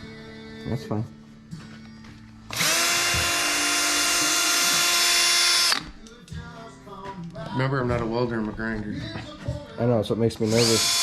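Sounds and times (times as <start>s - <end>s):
electric drill high whine: 2.5s - 5.8s, 10.5s - 11.0s.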